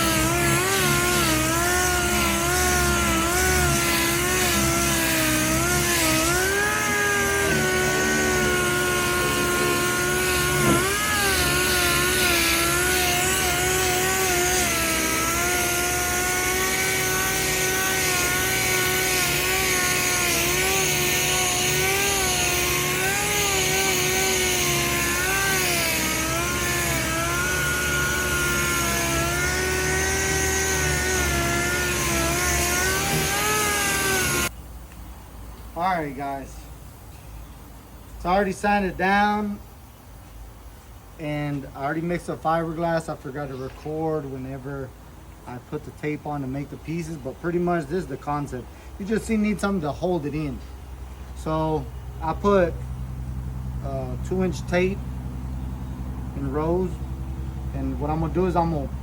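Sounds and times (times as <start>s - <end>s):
power sander running: 0.0s - 34.5s, 56.2s - 59.0s.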